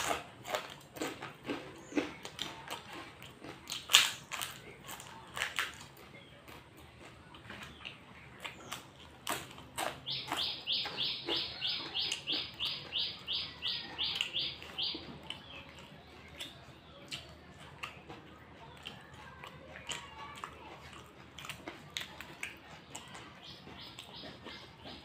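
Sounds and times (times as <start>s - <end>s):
crunchy chewing: 0.0s - 25.0s
high animal-like chirp: 9.8s - 15.6s.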